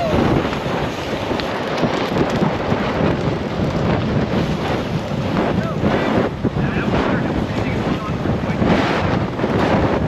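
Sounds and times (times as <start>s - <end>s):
tires rolling on dirt: 0.0s - 10.0s
wind rushing over microphone: 0.0s - 10.0s.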